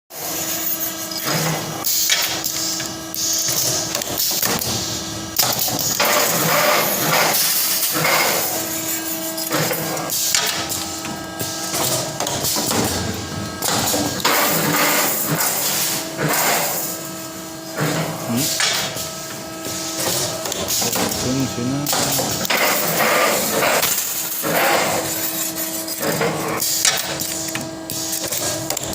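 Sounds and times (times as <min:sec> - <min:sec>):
machine motor hum: 0:03.7 - 0:25.2.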